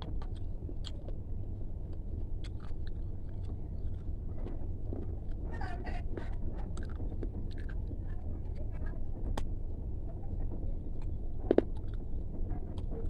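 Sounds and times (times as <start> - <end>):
crunchy chewing: 0.0 - 5.4, 6.2 - 8.0, 11.0 - 12.1.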